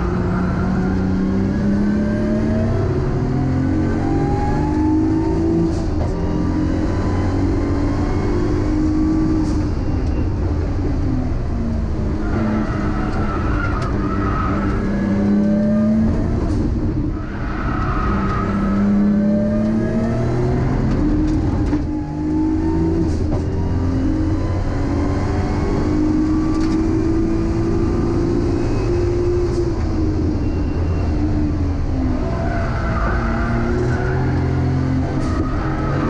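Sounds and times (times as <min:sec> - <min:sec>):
car engine revving: 0:00.0 - 0:09.6, 0:11.3 - 0:30.4.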